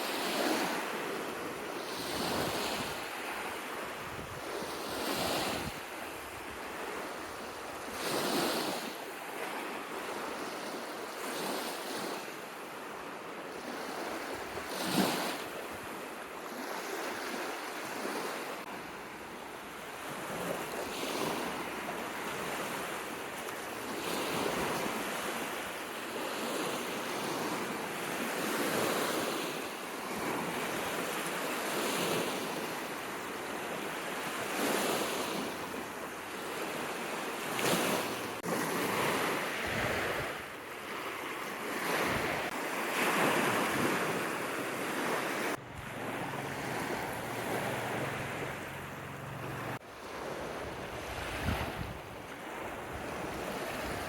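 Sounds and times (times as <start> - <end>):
waves washing on shore: 0.0 - 54.0
wind: 0.0 - 54.0.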